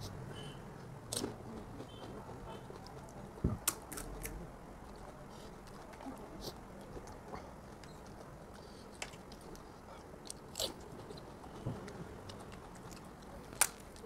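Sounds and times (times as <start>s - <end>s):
person chewing crunchy food: 4.9s - 11.5s.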